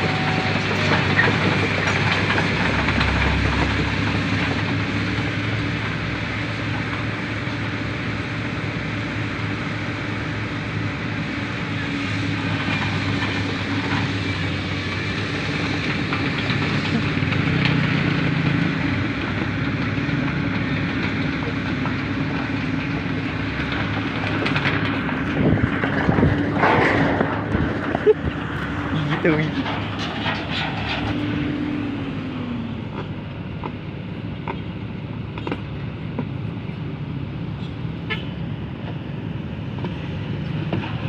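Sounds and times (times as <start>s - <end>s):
diesel engine droning: 0.0s - 41.0s
knocks and clatter: 0.6s - 6.0s, 12.3s - 31.2s.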